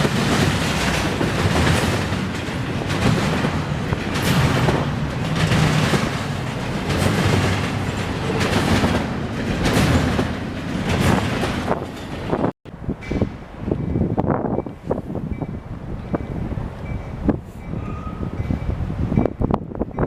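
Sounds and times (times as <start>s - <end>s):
train wheels clacking: 0.0s - 14.8s
train rumble: 0.0s - 20.0s.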